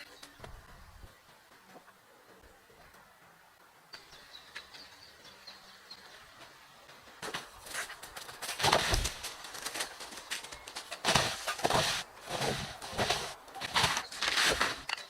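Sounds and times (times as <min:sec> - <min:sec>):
rustling and scuffing: 0:07.2 - 0:15.0.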